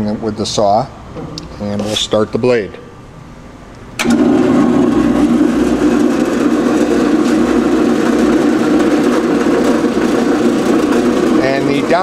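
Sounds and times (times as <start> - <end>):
band saw running: 4.0 - 12.0.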